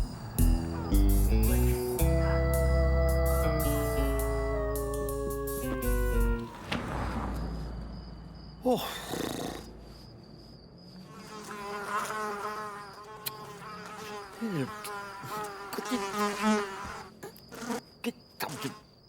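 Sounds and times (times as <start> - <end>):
cartoon insect buzzing: 11.1 - 18.9.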